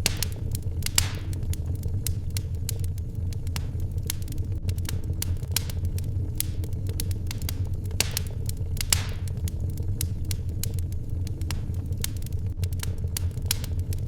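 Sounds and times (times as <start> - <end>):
fire hiss: 0.0 - 9.3
wood fire crackling: 0.0 - 14.0.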